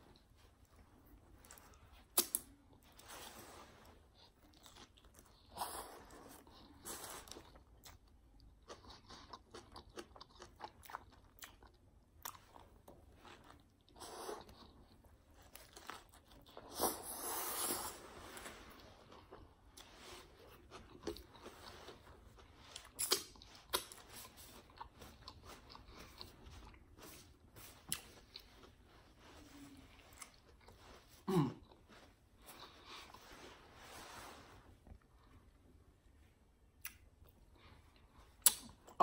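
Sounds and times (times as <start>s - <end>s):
person chewing sandwich: 0.1s - 33.4s
mouth clicks and smacks: 38.4s - 38.8s.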